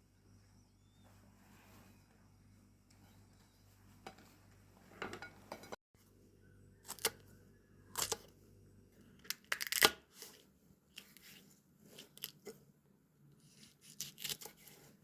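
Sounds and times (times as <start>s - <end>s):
crackling and scraping handling noises: 1.0s - 6.1s, 9.0s - 12.7s, 13.3s - 15.0s.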